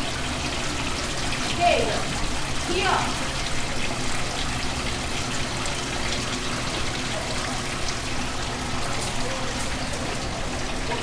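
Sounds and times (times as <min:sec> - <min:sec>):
water running from tap: 0:00.0 - 0:11.0.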